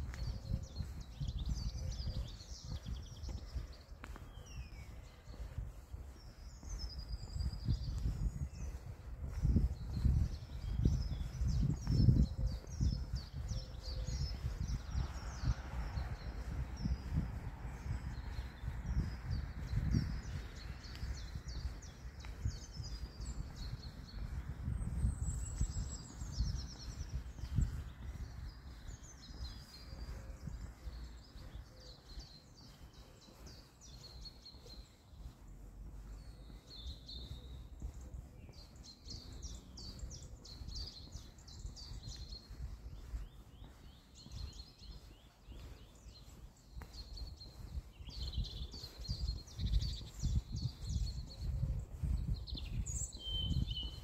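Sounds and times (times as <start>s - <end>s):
songbirds chirping and twittering: 0.0s - 54.0s.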